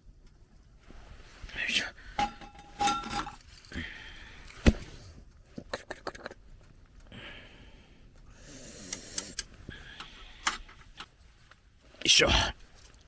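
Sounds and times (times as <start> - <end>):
metallic ring: 2.2 - 3.5.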